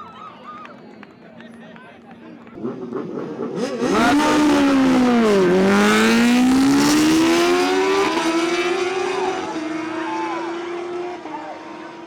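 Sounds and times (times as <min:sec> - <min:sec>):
motorbike engines revving high: 0:02.6 - 0:12.0.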